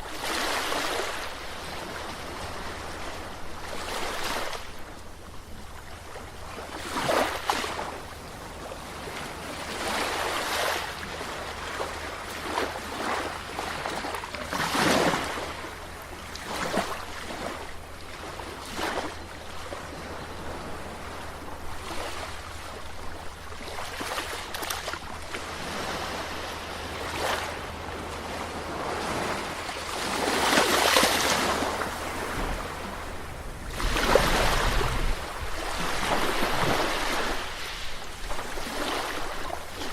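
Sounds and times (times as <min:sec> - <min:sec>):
sea waves breaking: 0:00.0 - 0:39.9.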